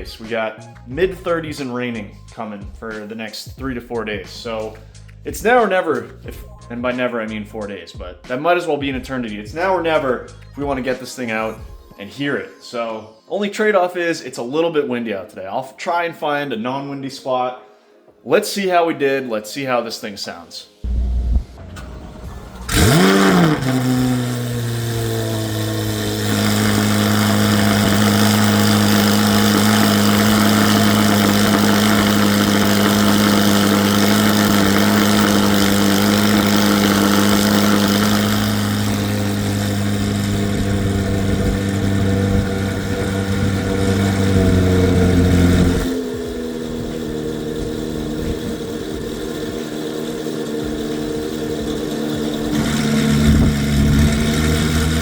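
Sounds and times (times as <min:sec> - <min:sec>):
car engine idling loudly: 0:20.9 - 0:55.0.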